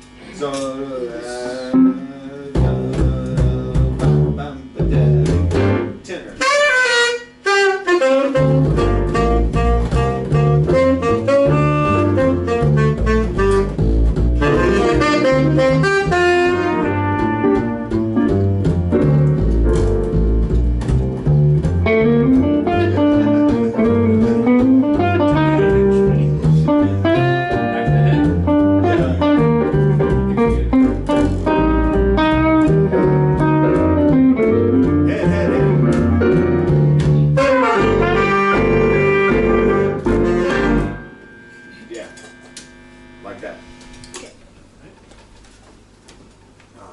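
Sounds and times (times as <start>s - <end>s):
small jazz band playing: 0.0s - 44.3s
low bass line: 1.7s - 6.0s, 8.3s - 44.2s
tenor saxophone: 6.4s - 18.2s, 21.8s - 29.6s, 37.3s - 44.4s.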